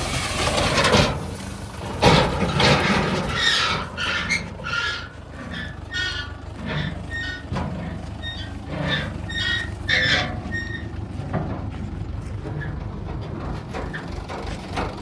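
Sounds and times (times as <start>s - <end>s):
diesel engine running: 0.0s - 15.0s
high-pitched squeaks: 2.1s - 11.1s.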